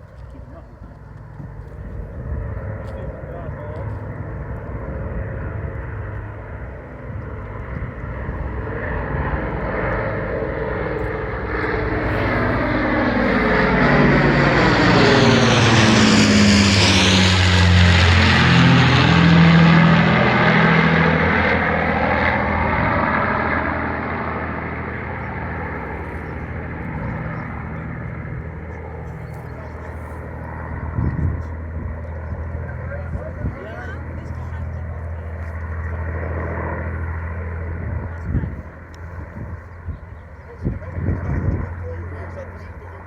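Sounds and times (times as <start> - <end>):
propeller plane engines droning: 0.0 - 43.0.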